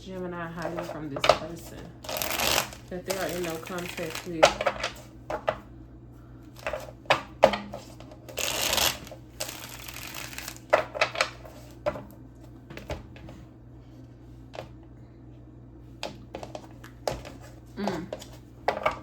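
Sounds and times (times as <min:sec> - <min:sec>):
cards being shuffled: 0:00.5 - 0:05.6, 0:07.7 - 0:11.8.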